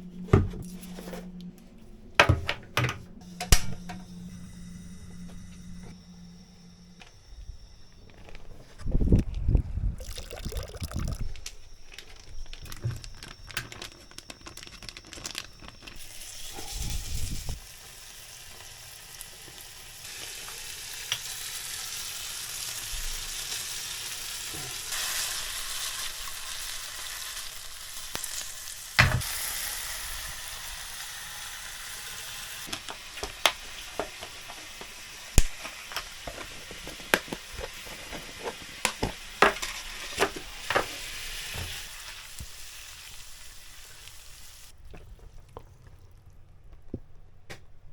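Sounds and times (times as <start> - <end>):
scallops sizzling in a pan: 16.1 - 44.7.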